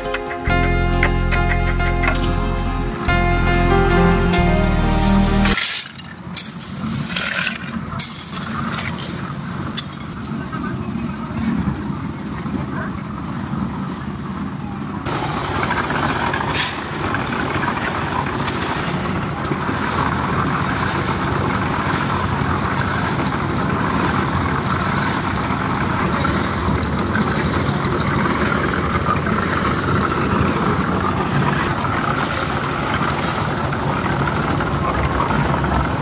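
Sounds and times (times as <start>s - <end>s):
engine running steadily: 0.0s - 36.0s.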